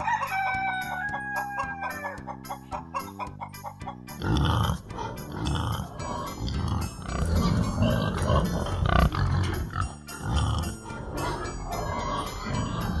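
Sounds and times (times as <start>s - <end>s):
pig grunting: 4.1s - 13.0s.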